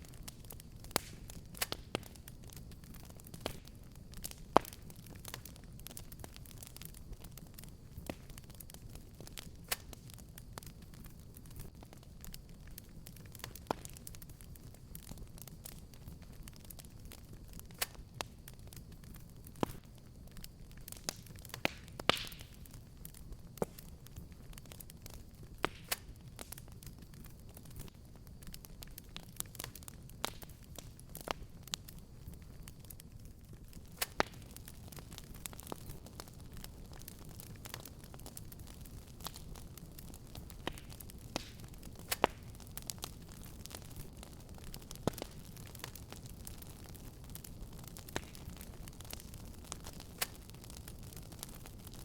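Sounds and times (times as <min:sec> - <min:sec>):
fireplace fire crackling: 0:00.0 - 0:52.0.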